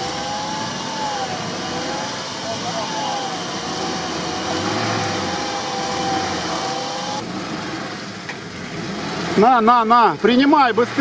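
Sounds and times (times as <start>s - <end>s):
steady whine: 0.0s - 8.1s
suv engines running: 0.0s - 11.0s.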